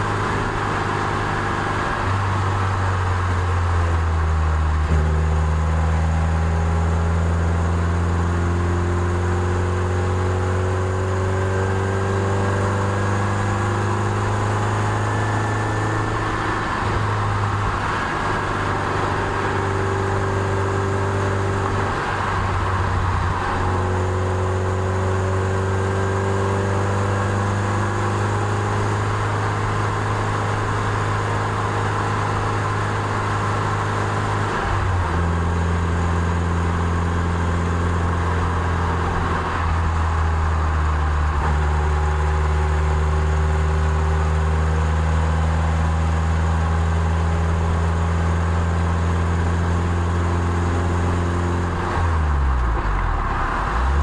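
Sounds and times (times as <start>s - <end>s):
car engine pulling uphill: 0.0s - 54.0s.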